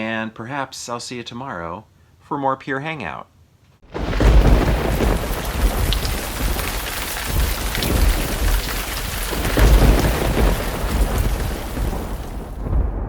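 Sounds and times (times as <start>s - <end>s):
gusting wind: 3.8s - 13.0s
heavy rain: 3.9s - 13.0s
thunder rumble: 3.9s - 13.0s.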